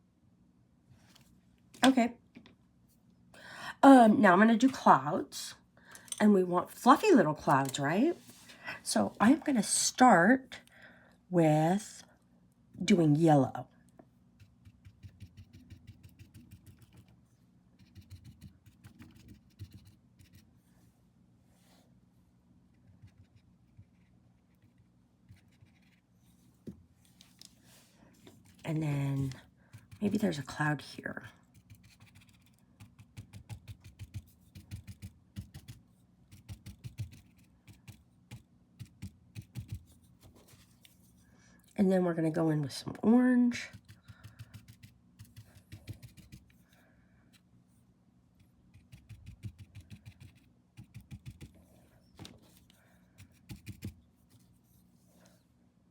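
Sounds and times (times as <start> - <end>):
paintbrush scratchy strokes: 23.1 - 26.4.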